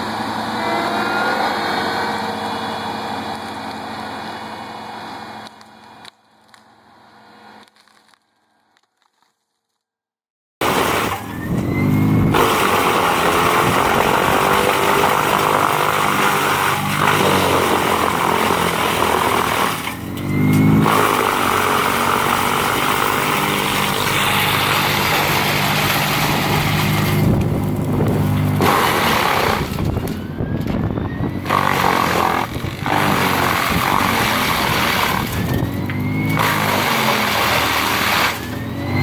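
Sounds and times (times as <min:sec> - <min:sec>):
heavy machinery engine running: 0:00.0 - 0:07.9, 0:10.6 - 0:39.0.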